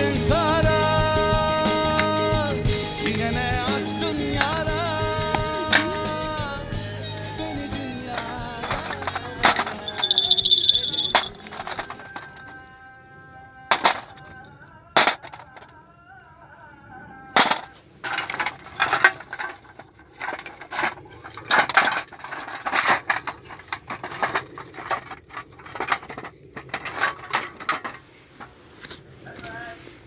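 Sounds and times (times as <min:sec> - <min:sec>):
small metal objects clinking: 0:08.0 - 0:12.9, 0:17.4 - 0:28.0.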